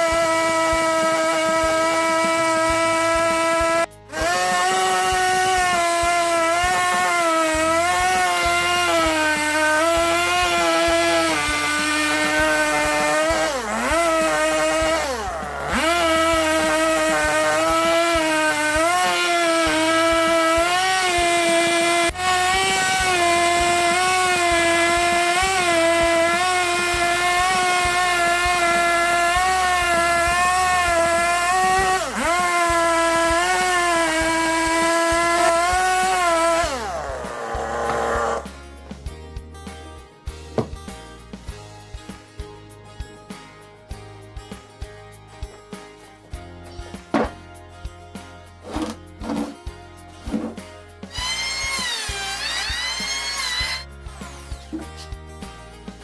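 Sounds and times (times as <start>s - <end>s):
chainsaw cutting wooden log: 0.0s - 38.7s, 47.0s - 47.4s, 48.6s - 49.6s, 50.2s - 55.1s.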